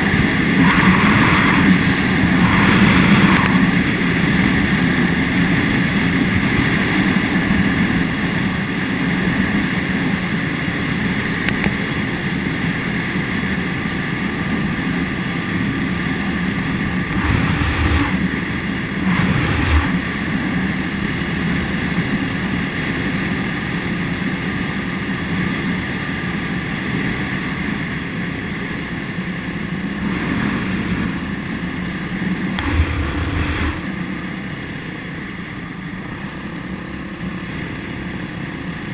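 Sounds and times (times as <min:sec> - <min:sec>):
motorcycle engine running: 0:00.0 - 0:07.2, 0:16.7 - 0:21.8, 0:30.1 - 0:34.9
rushing noise of travel: 0:00.0 - 0:38.9.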